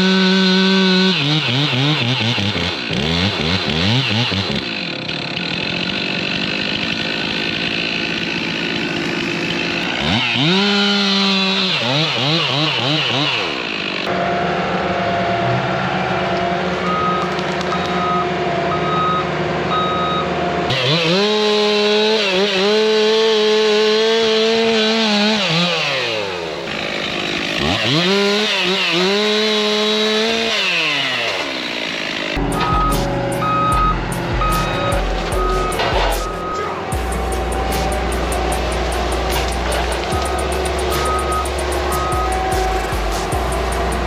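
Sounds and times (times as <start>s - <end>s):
chainsaw revving and cutting: 0.0s - 15.2s, 18.7s - 44.0s
engine drone: 0.0s - 44.0s
backup alarm beeping: 16.9s - 20.3s, 32.5s - 36.8s, 40.1s - 42.4s.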